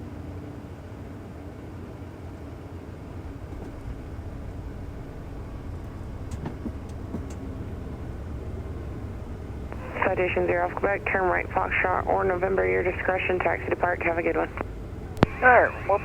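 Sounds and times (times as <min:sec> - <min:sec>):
low rumble in jet cockpit: 0:03.1 - 0:16.0
faint clicks: 0:09.7 - 0:16.0.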